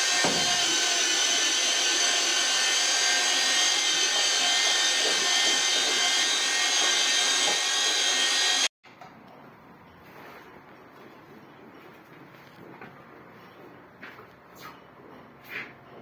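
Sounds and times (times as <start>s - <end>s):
power tool whining: 0.0s - 8.7s.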